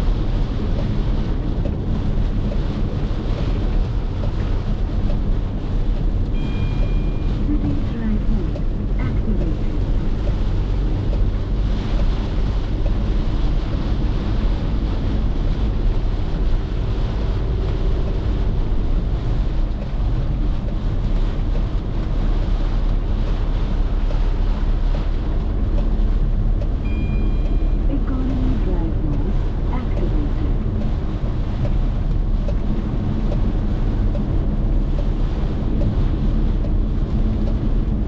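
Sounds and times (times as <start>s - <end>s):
engine and tyres rumbling: 0.0s - 38.0s
rain and water spray hissing: 0.0s - 38.0s
brief high tone: 6.4s - 7.3s, 26.8s - 28.0s.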